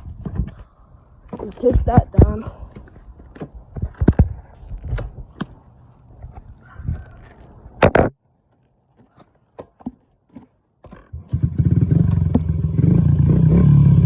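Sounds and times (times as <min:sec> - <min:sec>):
dirt bike engine running: 0:11.1 - 0:14.0.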